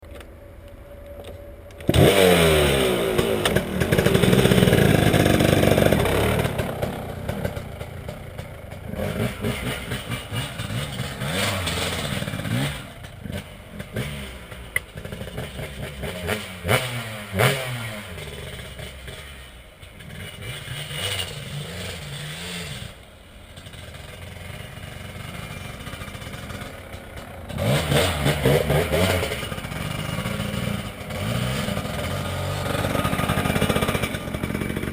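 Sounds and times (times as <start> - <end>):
dirt bike engine revving: 1.9 - 34.9.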